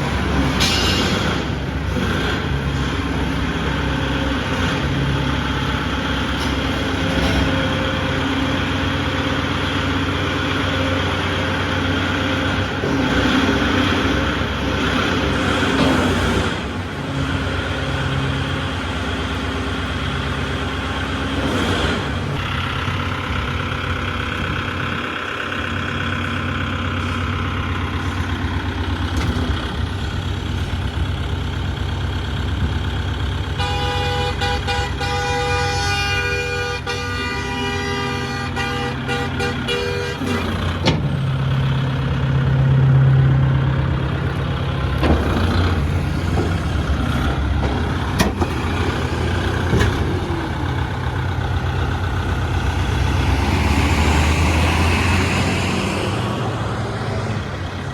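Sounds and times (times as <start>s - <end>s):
vehicle engine running: 1.3s - 57.9s
vehicle horn tooting: 33.6s - 40.5s.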